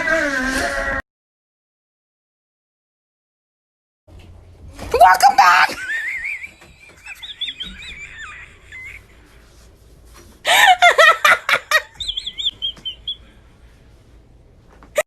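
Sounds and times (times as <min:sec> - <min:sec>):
birds chirping: 0:06.2 - 0:09.1, 0:11.7 - 0:13.5.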